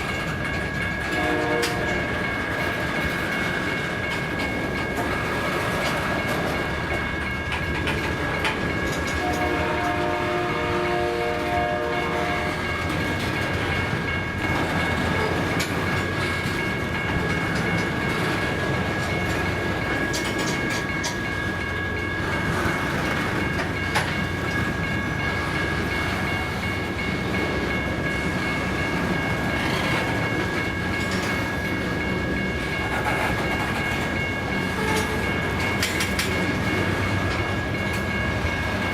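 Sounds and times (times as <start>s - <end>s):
train wheels clattering on rails: 0.0s - 38.9s
train horn: 1.1s - 2.1s, 9.2s - 12.7s, 34.8s - 35.2s.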